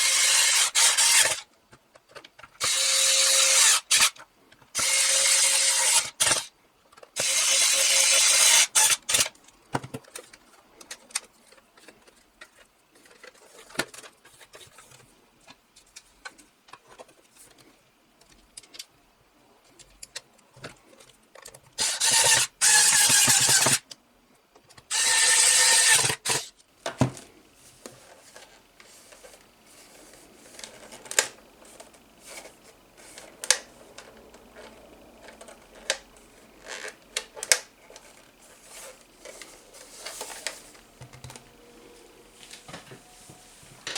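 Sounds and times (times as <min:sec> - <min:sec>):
small parts clicking and tapping: 0:03.5 - 0:19.0, 0:19.6 - 0:26.7.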